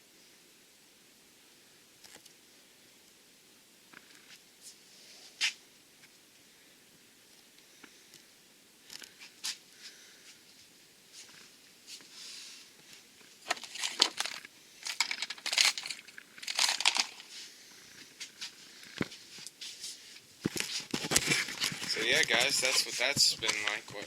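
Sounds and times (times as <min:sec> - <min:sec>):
crinkling and rustling handling: 0:07.3 - 0:24.0.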